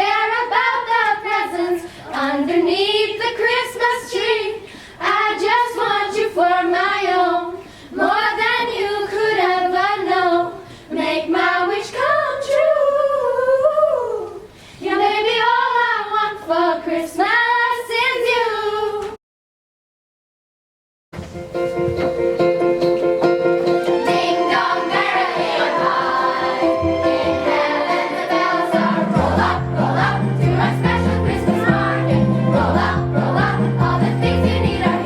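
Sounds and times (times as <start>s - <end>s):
children singing: 0.0s - 13.7s, 23.8s - 35.0s.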